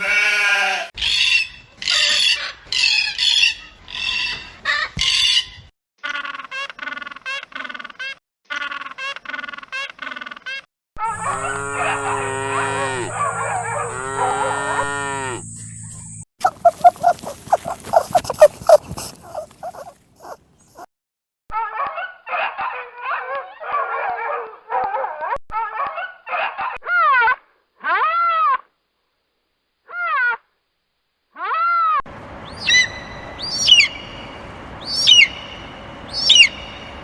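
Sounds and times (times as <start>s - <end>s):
farm animal calls: 11.1s - 15.4s, 16.4s - 20.9s.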